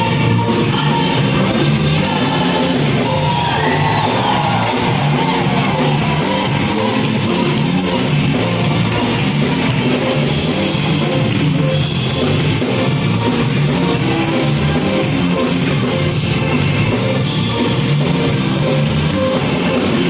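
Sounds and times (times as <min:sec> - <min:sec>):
band accompaniment: 0:00.0 - 0:20.0
gospel choir singing: 0:00.2 - 0:07.9.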